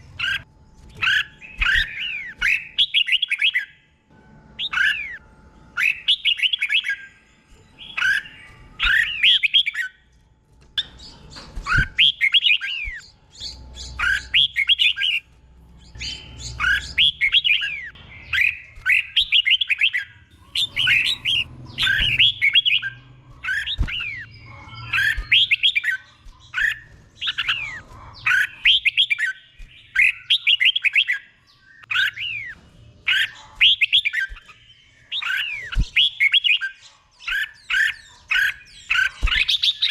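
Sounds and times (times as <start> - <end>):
bulbul singing whistled notes: 10.8 - 15.2, 15.8 - 39.9.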